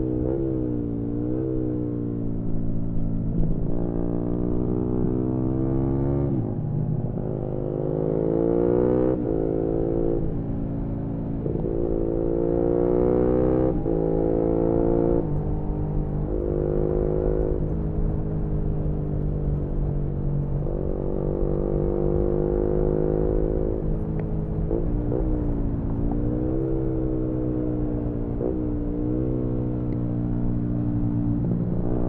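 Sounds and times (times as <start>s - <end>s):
motorcycle engine revving: 11.4s - 19.2s.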